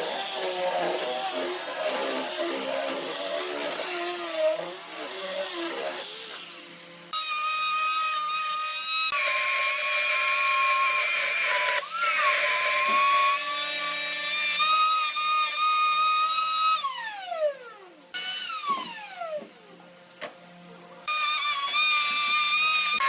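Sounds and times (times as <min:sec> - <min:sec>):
power tool motor whining: 0:00.0 - 0:07.8.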